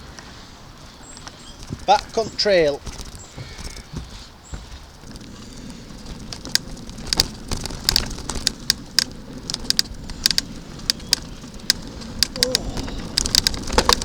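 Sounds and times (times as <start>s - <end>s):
bicycle tyres rumbling on gravel: 0.0s - 14.0s
clicks and rattles: 1.2s - 4.0s, 4.9s - 14.0s.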